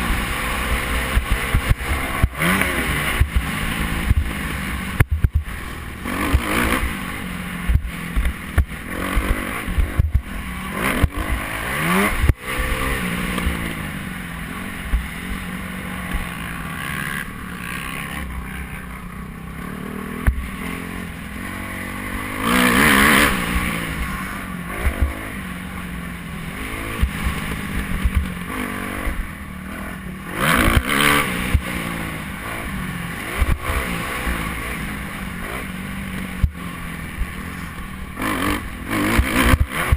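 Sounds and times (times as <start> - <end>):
motorbike engine revving: 0.0 - 39.9
low thumps and knocks: 5.0 - 5.6, 7.7 - 10.3.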